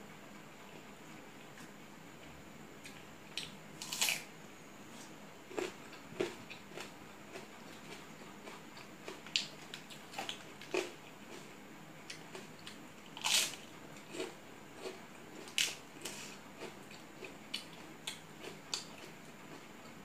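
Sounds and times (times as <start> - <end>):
chewing with mouth clicks: 5.5 - 11.5, 12.1 - 20.0.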